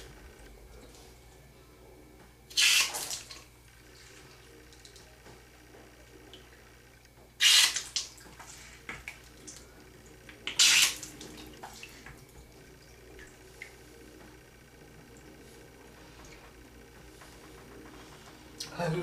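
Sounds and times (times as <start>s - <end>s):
small drips and splashes: 7.6s - 13.8s
water squirting and splashing: 10.5s - 12.1s.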